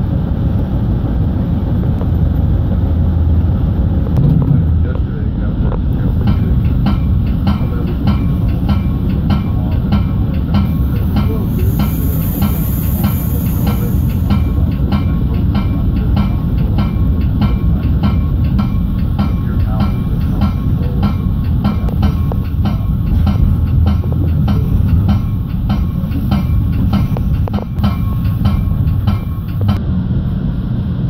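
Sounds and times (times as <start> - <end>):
train rumbling along track: 0.0 - 31.0
wheels clicking over rail joints: 5.8 - 29.8.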